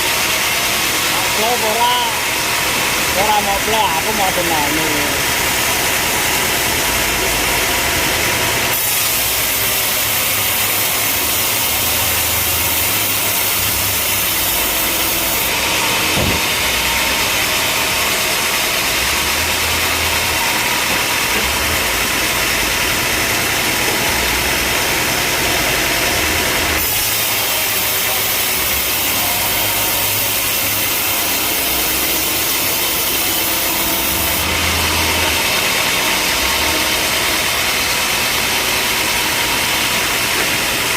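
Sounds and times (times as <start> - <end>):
saw cutting timber: 0.0 - 40.9.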